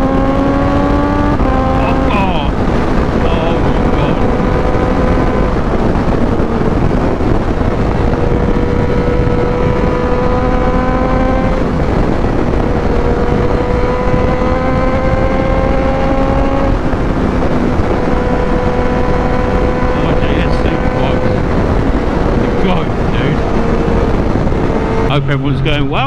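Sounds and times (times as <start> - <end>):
motorcycle engine revving: 0.0 - 26.0
wind rush: 0.0 - 26.0.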